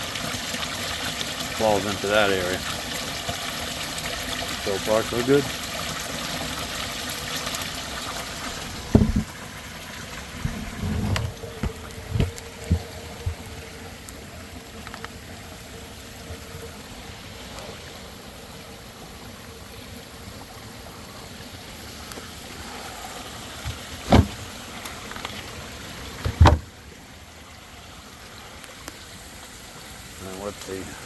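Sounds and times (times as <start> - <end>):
water falling and trickling: 0.0 - 31.0
sharp loud knocks: 8.8 - 9.3, 24.1 - 24.4, 26.3 - 26.6.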